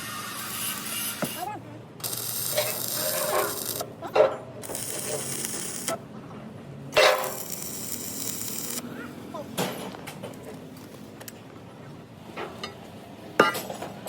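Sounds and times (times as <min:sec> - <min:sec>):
sharp metal clanks: 0:07.0 - 0:07.5.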